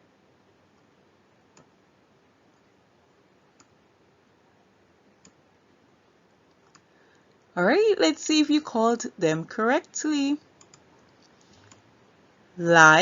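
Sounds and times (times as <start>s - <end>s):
small clicks: 10.6s - 11.8s.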